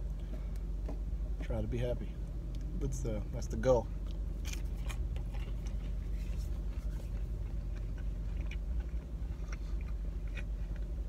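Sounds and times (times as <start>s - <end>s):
steady low hum: 0.0s - 11.0s
person chewing food: 4.0s - 11.0s.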